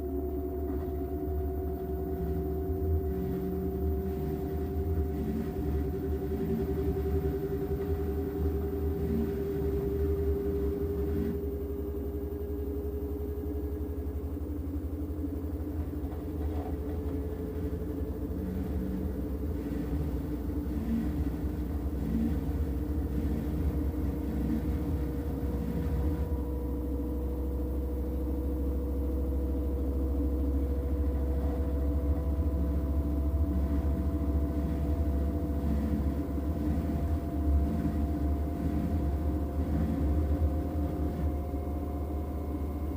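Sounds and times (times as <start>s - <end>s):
motor whine rising in pitch: 0.0s - 42.9s
washing machine drum rumbling: 15.2s - 27.1s, 29.1s - 41.8s.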